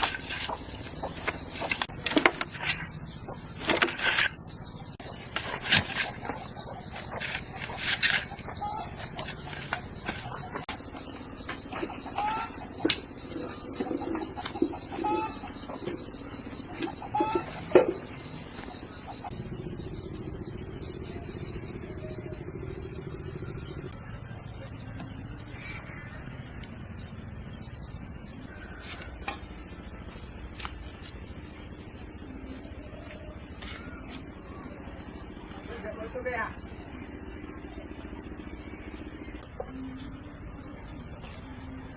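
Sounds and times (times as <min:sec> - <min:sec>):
chickens clucking: 0:00.0 - 0:19.4
high insect drone: 0:00.0 - 0:41.9
steady low hum: 0:00.0 - 0:41.9.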